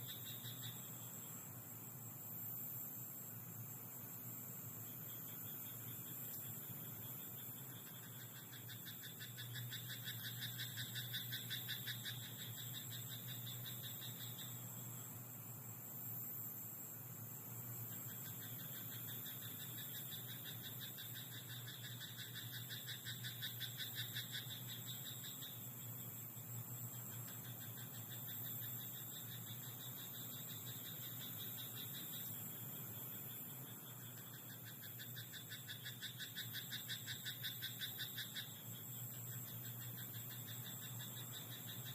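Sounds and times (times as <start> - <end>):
frogs croaking: 0.0 - 41.9
steady high hiss: 0.0 - 41.9.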